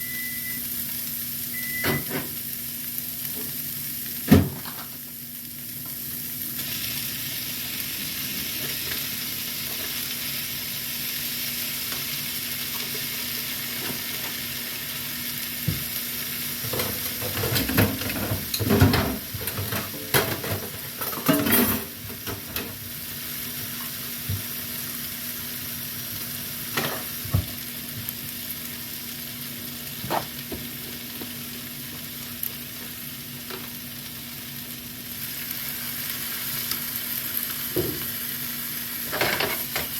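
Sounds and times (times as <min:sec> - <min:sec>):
food sizzling in a pan: 0:00.0 - 0:39.9
clattering and stirring: 0:16.6 - 0:22.8.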